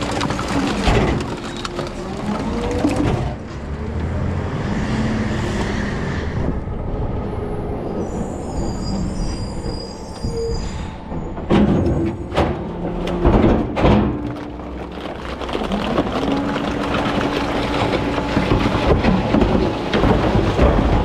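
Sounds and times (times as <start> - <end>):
garbage truck running: 0.0 - 4.5, 11.1 - 21.0
high squeal: 7.3 - 11.4.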